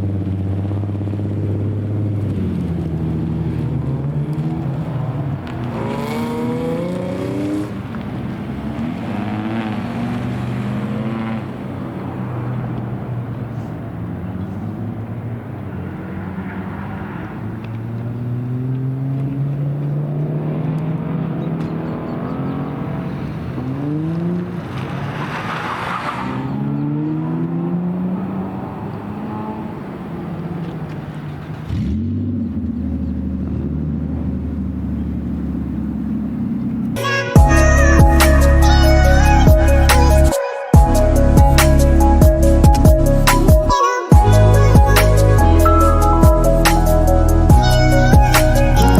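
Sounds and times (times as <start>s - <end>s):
car engines revving: 0.0s - 48.9s
steady low tone: 37.4s - 48.9s.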